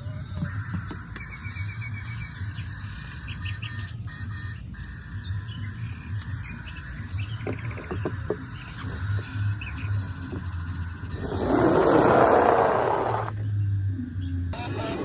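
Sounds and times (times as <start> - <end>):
birds chirping: 1.4 - 4.0, 5.2 - 10.2
insect trilling: 2.3 - 13.4.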